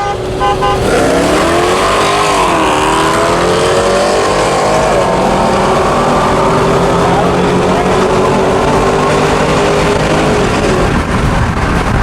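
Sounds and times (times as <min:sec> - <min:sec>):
truck engine accelerating hard: 0:00.0 - 0:12.0.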